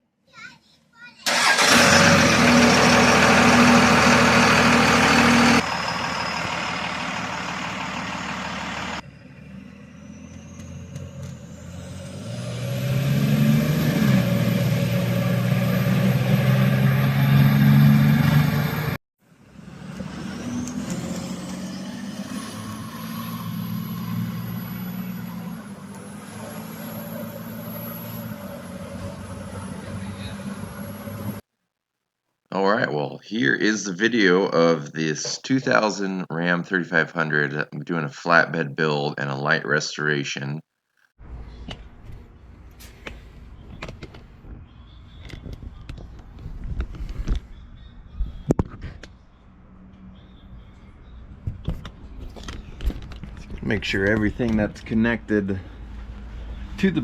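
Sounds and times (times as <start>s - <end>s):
diesel engine running: 1.3s - 31.4s.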